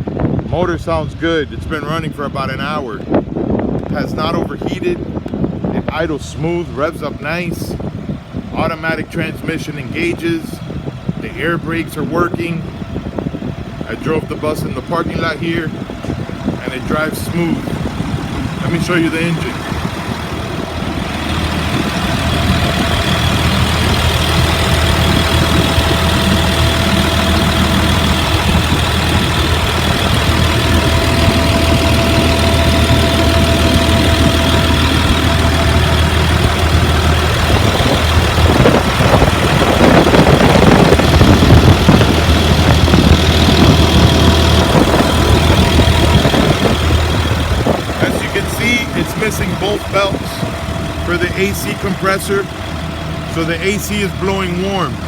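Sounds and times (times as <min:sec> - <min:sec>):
bus engine idling: 0:00.0 - 0:55.0.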